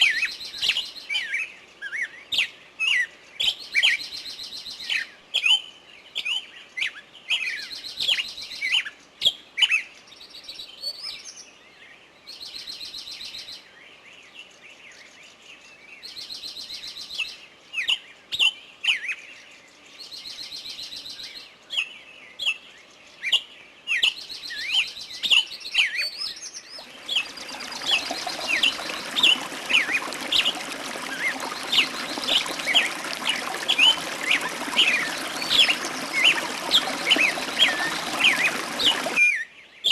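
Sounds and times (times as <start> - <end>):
running water rushing: 26.7 - 39.2.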